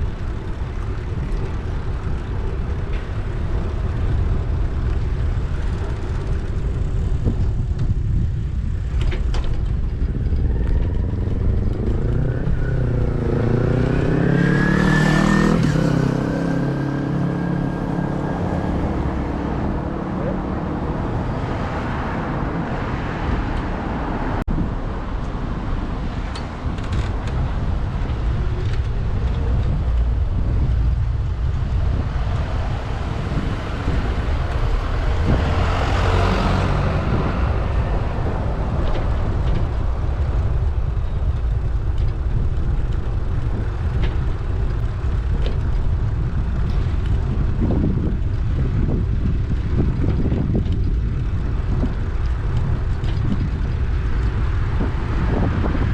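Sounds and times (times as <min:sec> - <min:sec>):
street traffic: 0:00.0 - 0:55.9
wind rumble on microphone: 0:00.0 - 0:55.9
vehicle passing: 0:10.0 - 0:24.4, 0:27.2 - 0:45.4.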